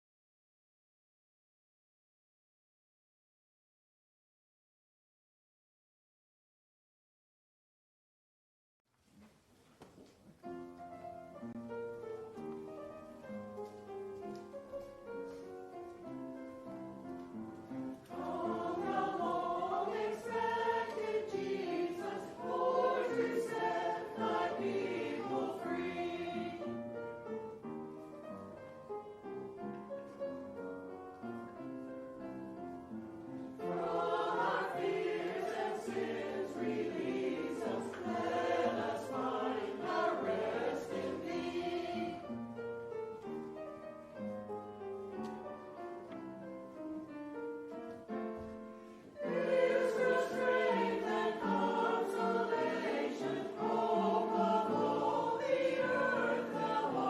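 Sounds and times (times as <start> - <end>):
choir singing: 16.4 - 27.6, 33.4 - 42.8, 49.0 - 57.0.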